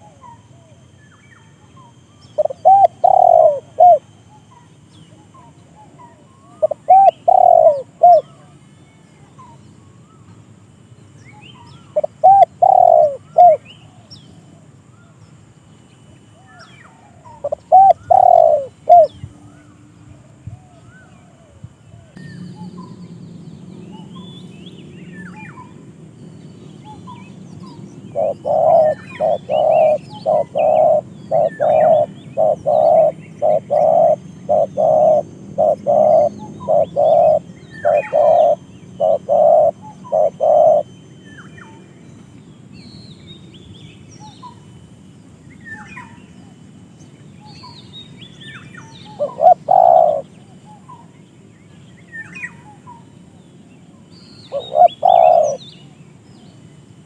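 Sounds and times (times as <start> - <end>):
small birds chirping faintly: 0.0 - 57.0
bird calling low notes: 1.7 - 8.5, 11.6 - 13.8, 16.4 - 19.8, 20.6 - 42.4, 47.4 - 51.2, 54.4 - 55.8.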